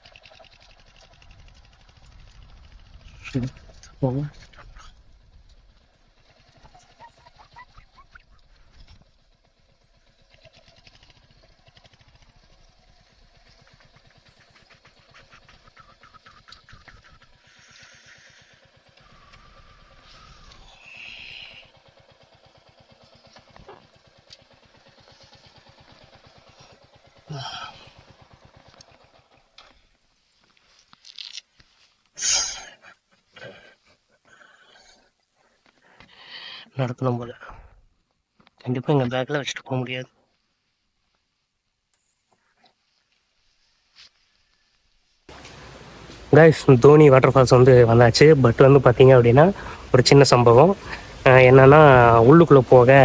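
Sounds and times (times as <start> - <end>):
motorcycle engine running at low revs: 0.0 - 29.6, 47.5 - 53.0.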